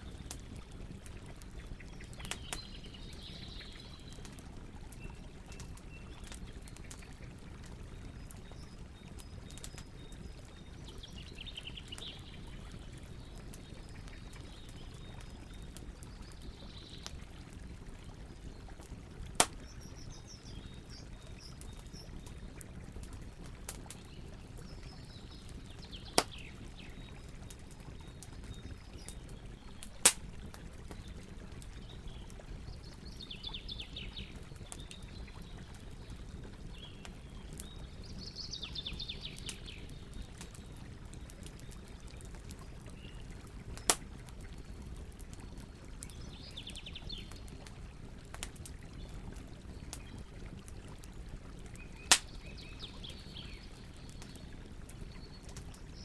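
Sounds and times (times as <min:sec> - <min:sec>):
campfire crackling: 0:00.0 - 0:56.0
burning wood popping: 0:00.1 - 0:07.1, 0:19.2 - 0:20.0, 0:21.4 - 0:31.9, 0:43.7 - 0:45.5, 0:51.8 - 0:52.5.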